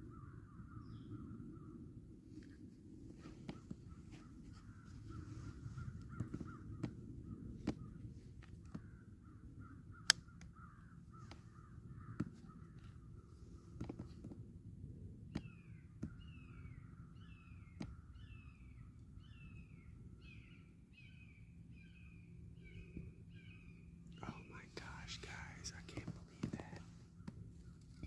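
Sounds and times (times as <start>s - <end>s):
low steady rumble: 0.0s - 28.0s
distant harsh bird calls: 3.5s - 14.2s, 15.3s - 27.8s
sharp clicks and snaps: 10.0s - 10.6s.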